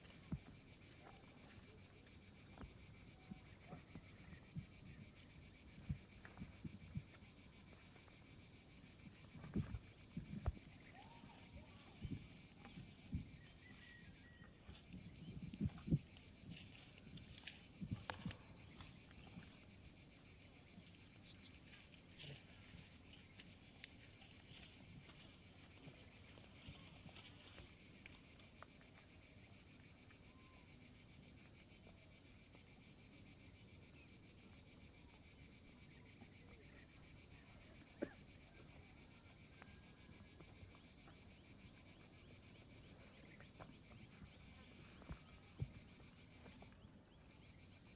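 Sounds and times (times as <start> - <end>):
high-pitched insect chorus: 0.0 - 47.9.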